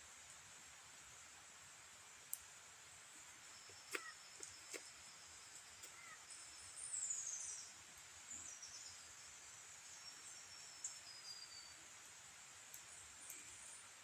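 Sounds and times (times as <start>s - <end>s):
steady high hiss: 0.0s - 14.0s
faint bird whistles: 10.1s - 11.8s.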